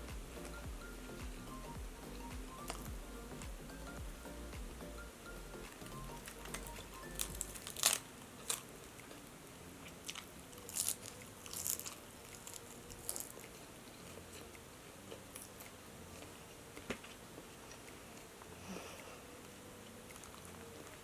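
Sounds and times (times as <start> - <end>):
quiet chewing: 5.7 - 21.0
crunching fried chicken: 6.2 - 18.2, 19.8 - 21.0.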